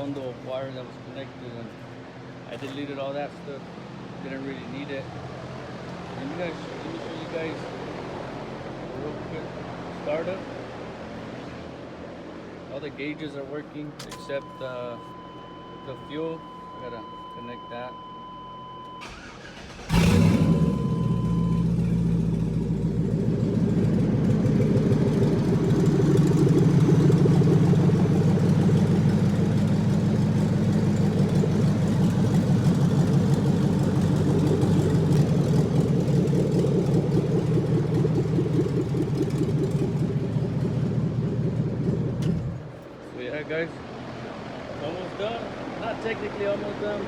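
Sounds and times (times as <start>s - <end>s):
engine cranking and idling: 13.9s - 15.2s, 19.0s - 43.0s
electronic warning tone: 14.1s - 19.1s.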